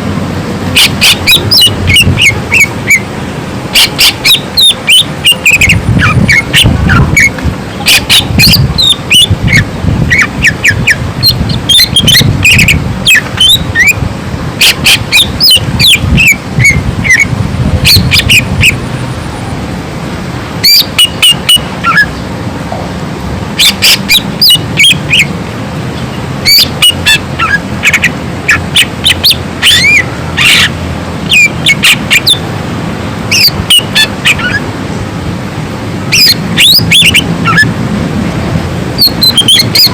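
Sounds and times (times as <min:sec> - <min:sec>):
bird whistling and chirping: 0:00.8 - 0:03.0, 0:03.8 - 0:14.0, 0:14.6 - 0:18.8, 0:20.6 - 0:22.1, 0:23.6 - 0:25.3, 0:26.5 - 0:30.7, 0:31.3 - 0:32.4, 0:36.2 - 0:37.7, 0:39.0 - 0:39.9.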